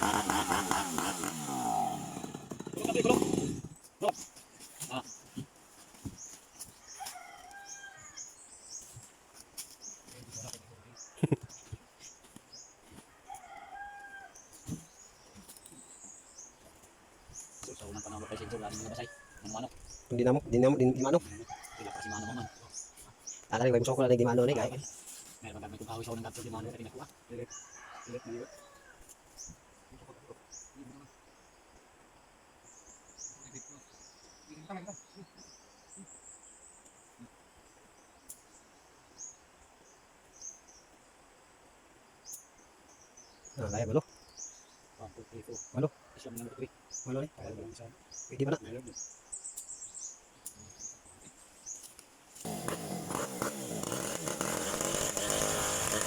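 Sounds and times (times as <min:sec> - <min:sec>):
insects chirping: 0:00.0 - 0:56.0
rooster crowing: 0:06.9 - 0:08.3, 0:13.1 - 0:14.4, 0:17.9 - 0:19.6, 0:21.4 - 0:22.7, 0:27.5 - 0:29.0
birds chirping: 0:13.4 - 0:31.4.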